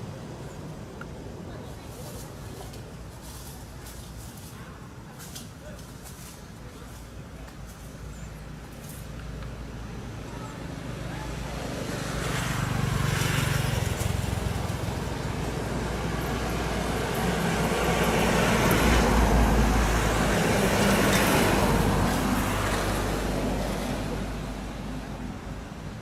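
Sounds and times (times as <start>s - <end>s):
motor vehicle passing: 10.4s - 25.4s.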